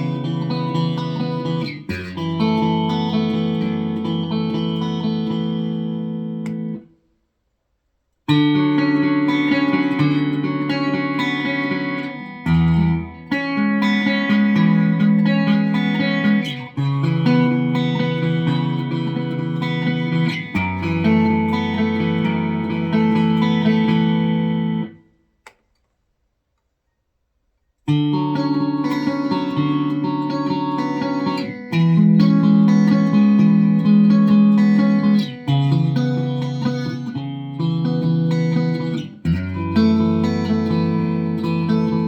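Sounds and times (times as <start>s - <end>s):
clean electric guitar chords: 0.0s - 6.9s, 8.3s - 25.1s, 27.9s - 42.0s.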